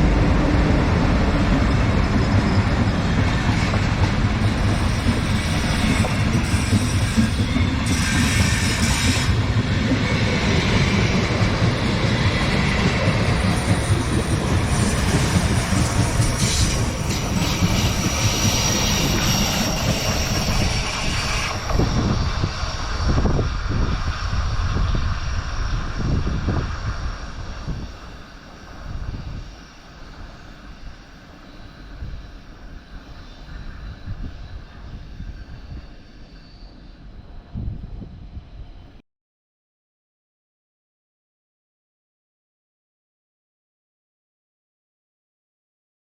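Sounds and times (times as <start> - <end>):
train wheels on rails: 0.0 - 38.9
high wheel squeal: 1.5 - 23.2, 27.8 - 37.0.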